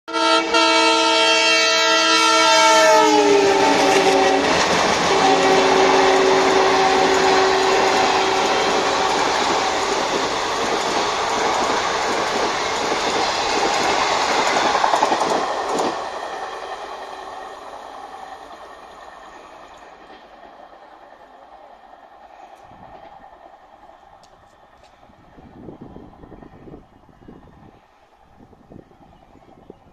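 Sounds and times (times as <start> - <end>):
locomotive horn: 0.1 - 10.0.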